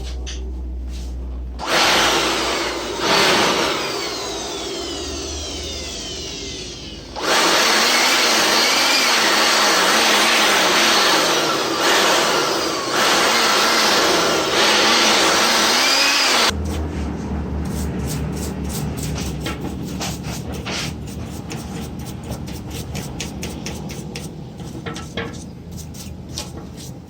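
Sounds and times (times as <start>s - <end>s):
electric duster blowing air: 1.6s - 16.9s
low hum: 16.5s - 19.5s.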